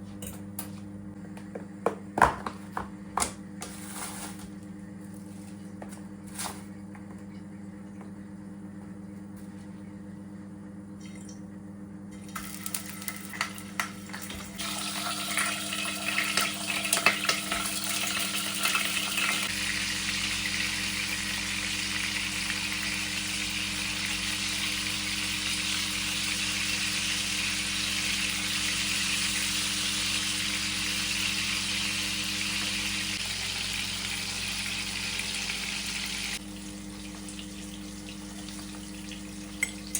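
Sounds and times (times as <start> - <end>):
food sizzling in a pan: 14.6 - 36.4.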